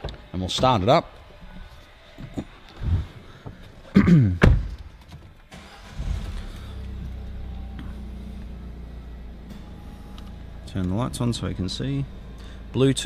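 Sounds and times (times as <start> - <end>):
sharp thump: 4.4 - 4.9
diesel engine starting and idling: 5.5 - 13.0.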